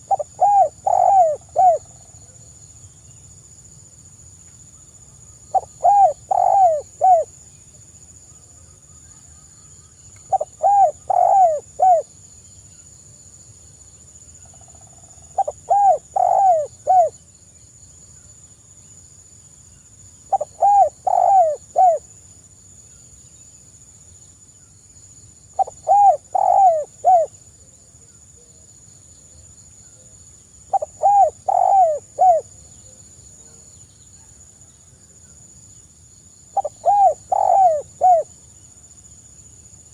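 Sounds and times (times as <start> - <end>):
dove cooing: 0.0 - 2.0, 5.5 - 7.3, 10.3 - 12.1, 15.3 - 17.2, 20.3 - 22.0, 25.6 - 27.4, 30.7 - 32.5, 36.6 - 38.3.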